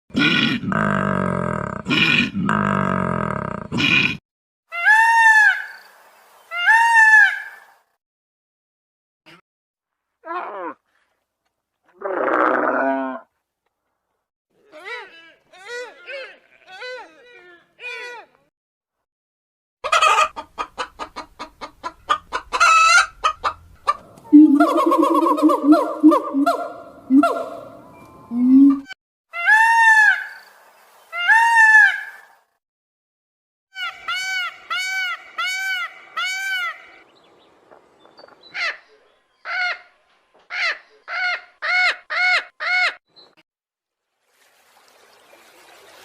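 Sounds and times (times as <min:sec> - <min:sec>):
longer animal cries: 0:10.2 - 0:10.8, 0:12.0 - 0:13.2
bird calling loudly: 0:23.9 - 0:28.0, 0:38.4 - 0:43.0.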